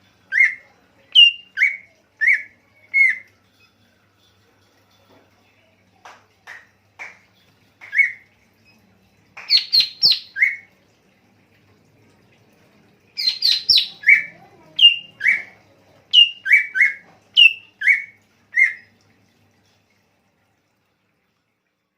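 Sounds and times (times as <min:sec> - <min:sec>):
songbird calling: 0:01.2 - 0:03.2, 0:09.5 - 0:10.6, 0:13.2 - 0:15.5, 0:16.1 - 0:18.8.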